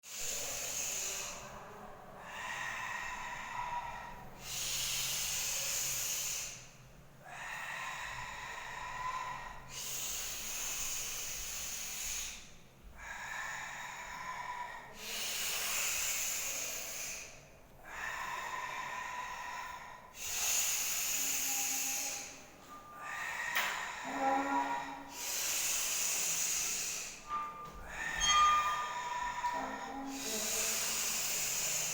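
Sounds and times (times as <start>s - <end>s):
person breathing forcefully: 13.0s - 31.9s
faint whistling tone: 26.6s - 30.6s.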